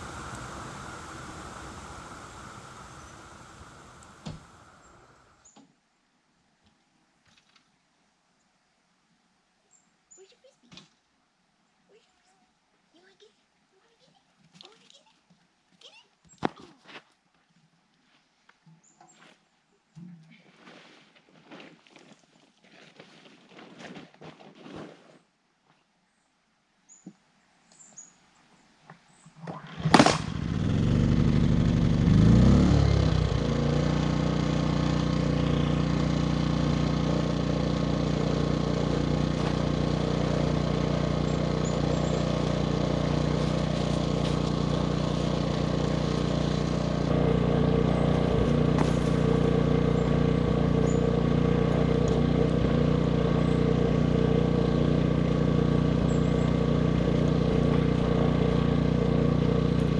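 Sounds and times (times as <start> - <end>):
generator engine running: 0.0 - 5.4, 30.0 - 59.9.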